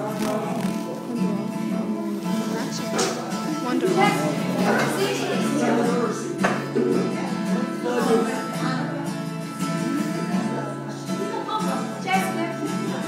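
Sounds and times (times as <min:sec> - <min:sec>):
plucked acoustic guitar music: 0:00.0 - 0:13.0.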